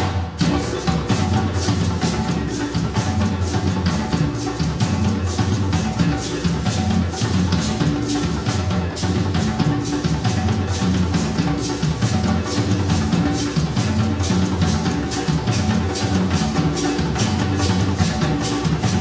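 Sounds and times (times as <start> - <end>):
drums keeping a steady beat: 0.0 - 19.0.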